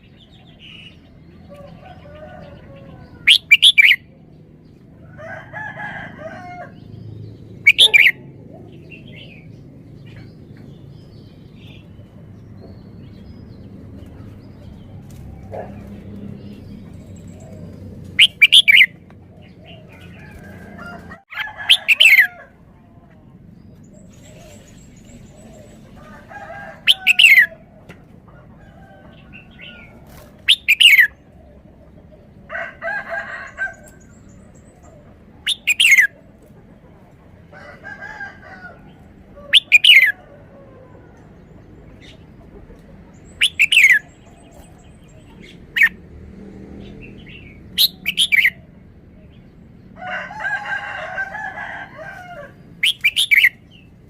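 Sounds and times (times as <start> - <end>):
soft bird calls: 0.0 - 4.1, 7.6 - 13.4, 14.0 - 32.1, 33.1 - 46.0.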